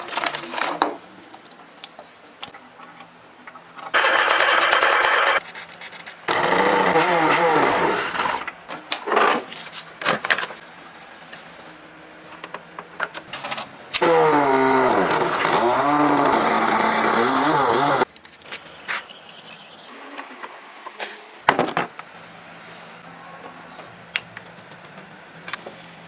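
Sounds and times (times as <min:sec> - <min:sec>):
workshop machinery running: 0:04.0 - 0:05.4, 0:06.3 - 0:09.4, 0:12.4 - 0:19.2.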